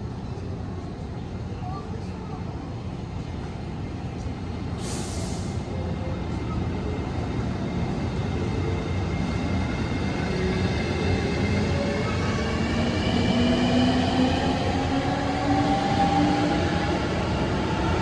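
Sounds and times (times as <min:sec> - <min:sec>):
air hiss: 0:04.8 - 0:05.6
electric train passing: 0:05.9 - 0:18.0.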